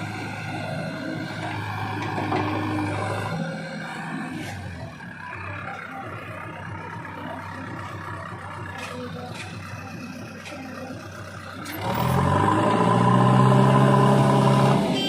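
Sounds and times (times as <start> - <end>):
diesel engine running and revving: 0.0 - 15.0.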